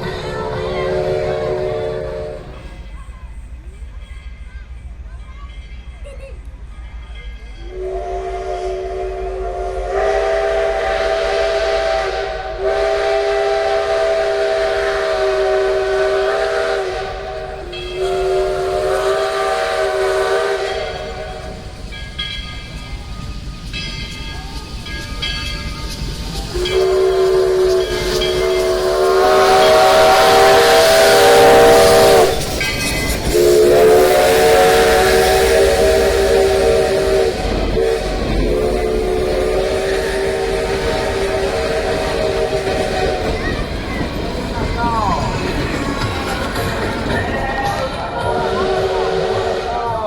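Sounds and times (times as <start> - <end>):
rush of steam: 0.0 - 4.8, 7.7 - 50.0
steam whistle chord blasts: 0.4 - 2.7, 7.7 - 21.6, 26.5 - 32.5, 33.3 - 43.3, 48.3 - 50.0.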